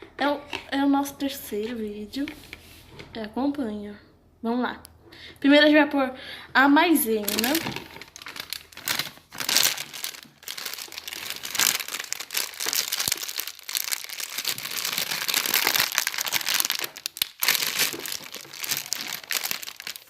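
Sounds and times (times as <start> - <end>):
packet crinkling and rustling: 7.1 - 20.0.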